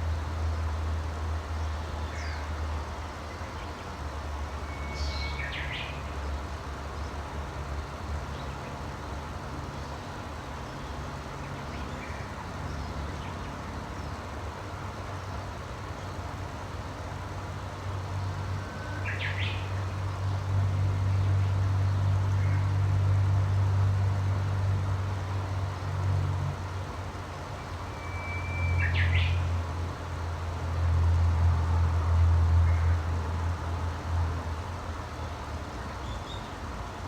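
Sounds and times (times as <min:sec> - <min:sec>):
low rumble and hiss: 0:00.0 - 0:37.0
bird calls: 0:27.9 - 0:29.5.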